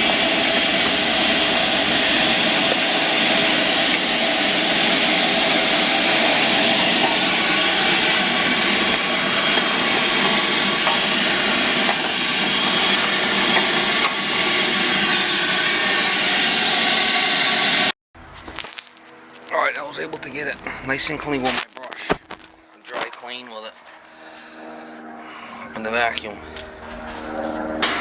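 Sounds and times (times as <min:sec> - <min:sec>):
vacuum cleaner motor whining: 0:00.0 - 0:17.9.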